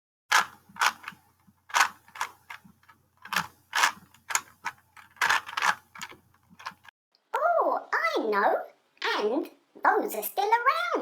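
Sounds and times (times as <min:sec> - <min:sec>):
puzzle cube plastic clicks: 0:00.3 - 0:06.9.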